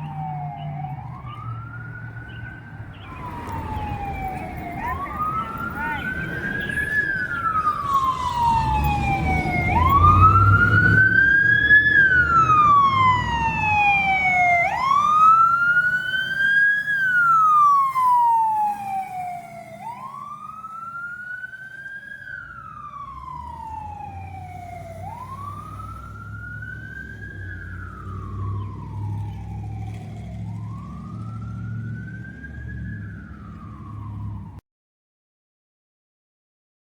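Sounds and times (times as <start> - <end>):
low engine rumble: 0.0 - 15.8, 22.3 - 34.5
emergency siren wailing: 0.0 - 34.6.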